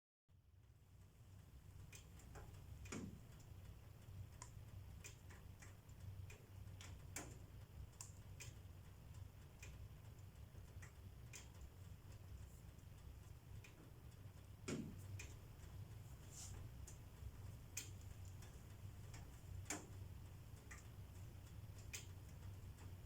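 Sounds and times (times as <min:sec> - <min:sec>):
wood fire crackling: 0:00.4 - 0:23.0
steady low rumble: 0:05.8 - 0:23.0.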